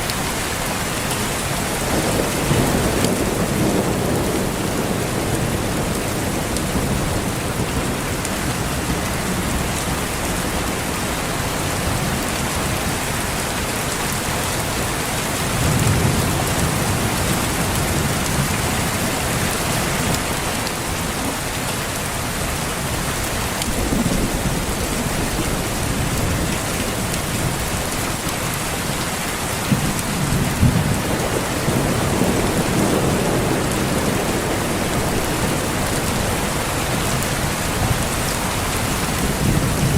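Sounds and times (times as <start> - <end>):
steady rain falling: 0.0 - 39.9
distant thunder rolling: 29.6 - 39.9.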